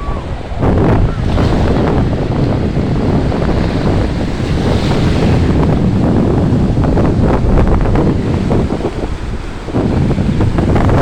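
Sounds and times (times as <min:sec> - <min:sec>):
sea surf: 0:00.0 - 0:11.0
wind buffeting microphone: 0:00.0 - 0:11.0.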